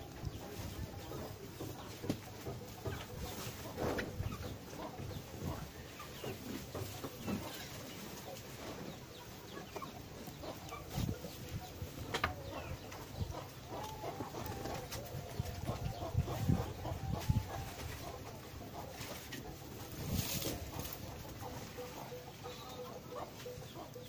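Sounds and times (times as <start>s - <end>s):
birds calling: 0.0s - 24.0s
rustling near microphone: 10.1s - 22.5s.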